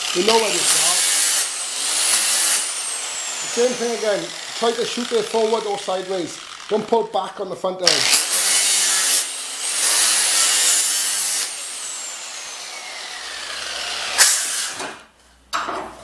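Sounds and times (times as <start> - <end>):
grinder grinding steel: 0.0 - 7.2, 7.9 - 14.8
grinder motor whine: 3.0 - 6.9, 7.9 - 8.4.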